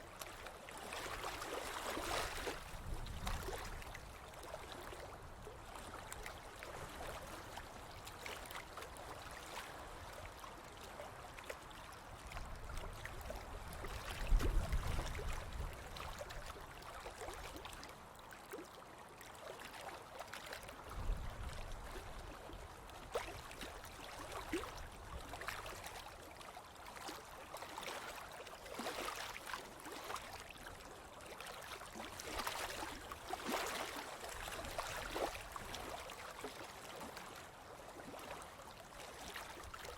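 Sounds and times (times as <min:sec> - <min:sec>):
low rumble of waves: 0:00.0 - 0:18.0, 0:20.6 - 0:26.9.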